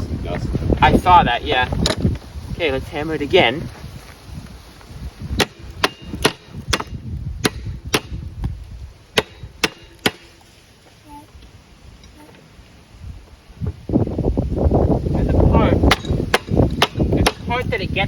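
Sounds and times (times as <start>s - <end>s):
hammer striking metal: 5.4s - 8.2s, 9.2s - 10.4s, 15.9s - 17.4s.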